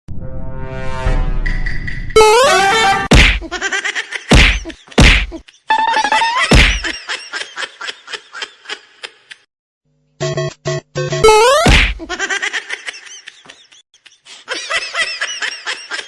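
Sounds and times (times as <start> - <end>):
loud sharp whacks: 3.1 - 3.5, 4.3 - 5.3, 6.5 - 6.9, 11.6 - 12.0.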